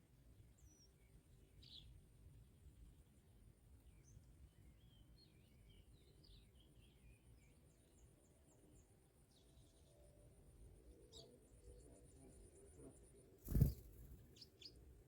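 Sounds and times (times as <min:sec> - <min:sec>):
bird twittering: 0:13.5 - 0:14.5.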